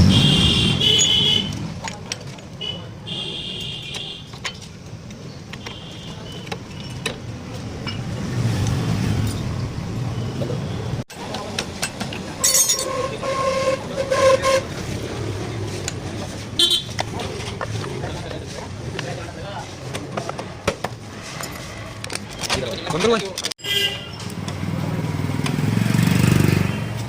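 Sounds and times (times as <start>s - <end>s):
street traffic rumbling: 0.0s - 27.0s
hand tools clicking and tapping: 1.5s - 2.6s, 3.6s - 9.5s
horn-like tone: 12.8s - 14.8s.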